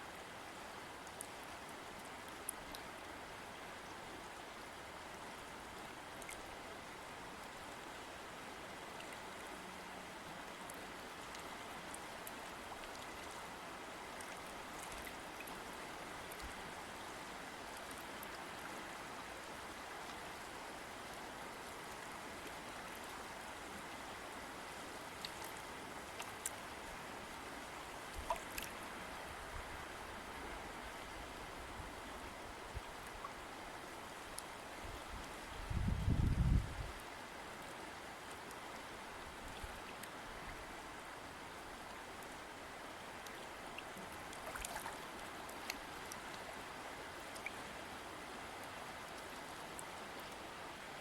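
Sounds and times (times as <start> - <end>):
small splashes and clicks: 6.2 - 6.5, 10.7 - 13.4, 14.2 - 15.6, 16.2 - 16.6, 25.2 - 26.7, 28.1 - 28.8, 43.2 - 46.6, 47.2 - 47.7
river water rushing: 37.0 - 51.0.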